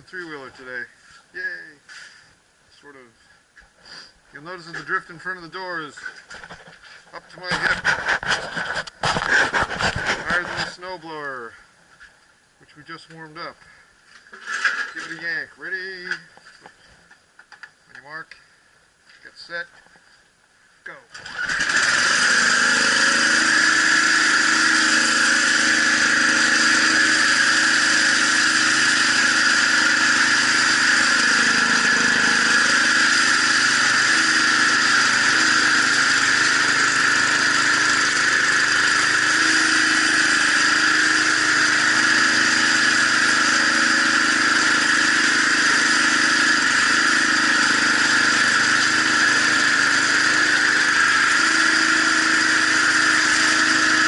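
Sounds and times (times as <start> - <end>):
snowblower engine running: 21.1 - 54.0.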